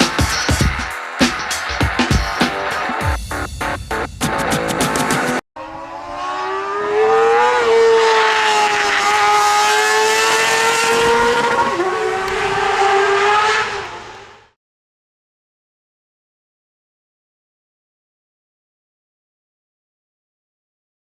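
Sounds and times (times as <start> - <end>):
motorcycle engine revving high: 4.4 - 14.0.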